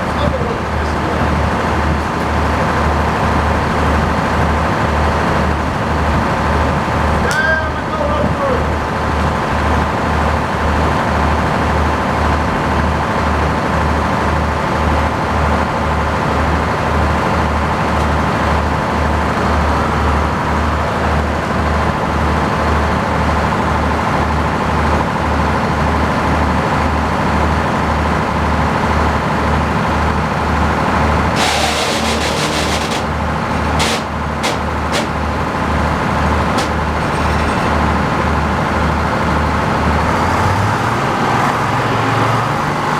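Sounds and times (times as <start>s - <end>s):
tractor engine running: 0.0s - 42.9s
short hissing burst: 31.4s - 35.2s
sharp clicks: 33.8s - 35.2s.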